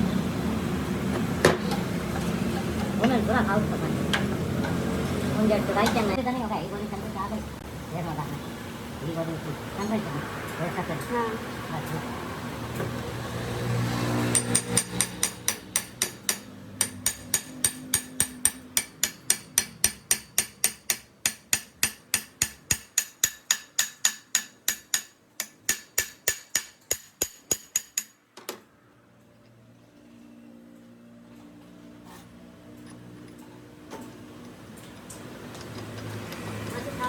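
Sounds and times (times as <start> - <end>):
hammer striking metal: 14.2 - 28.2.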